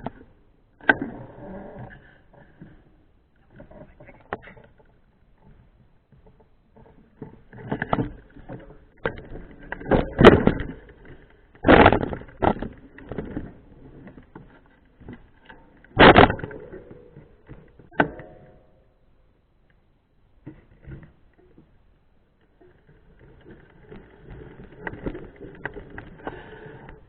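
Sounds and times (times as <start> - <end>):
mountain bike rattling over rough ground: 2.2 - 18.7.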